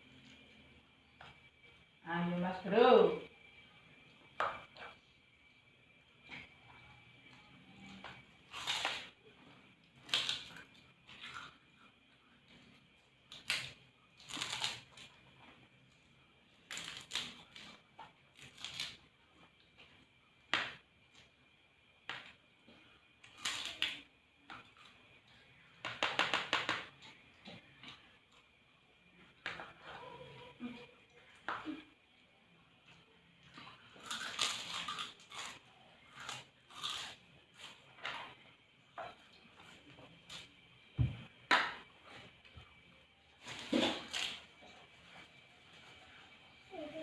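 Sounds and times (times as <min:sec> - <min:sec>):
people chewing: 0:06.2 - 0:20.1, 0:29.3 - 0:40.7.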